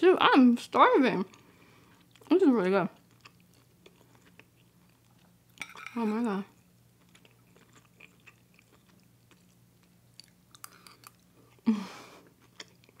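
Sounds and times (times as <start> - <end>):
woman chewing: 3.0 - 5.6, 6.9 - 13.0.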